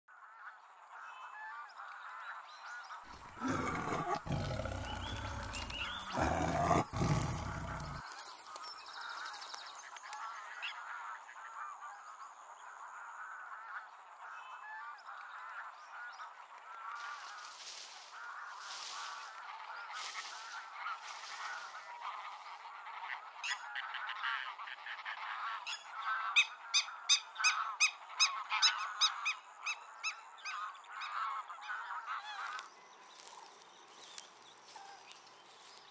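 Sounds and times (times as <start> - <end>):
distant animals and insects: 3.0 - 24.1
loud animal calls: 3.1 - 8.0.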